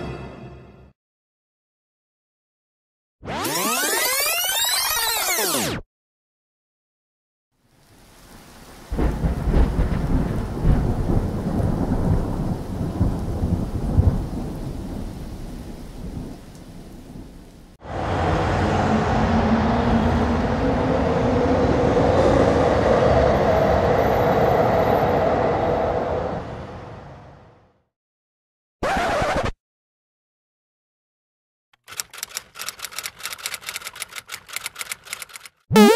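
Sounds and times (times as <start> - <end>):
rain hiss: 7.6 - 18.2
thunder rumbling: 8.3 - 26.6
train station ambience: 18.0 - 26.8.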